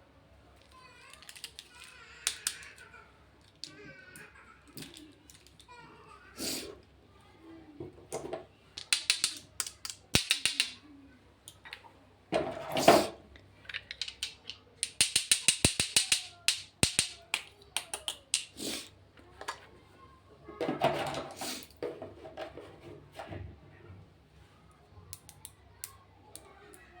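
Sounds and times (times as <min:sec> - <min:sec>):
plastic packaging clicks and taps: 0:01.2 - 0:02.8, 0:08.8 - 0:10.8, 0:13.7 - 0:18.5.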